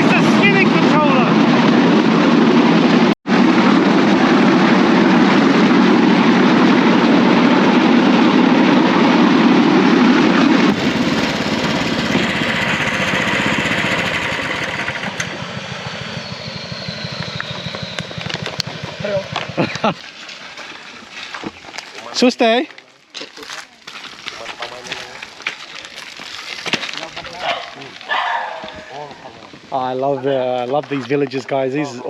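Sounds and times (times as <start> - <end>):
small motor engine: 10.7 - 19.8.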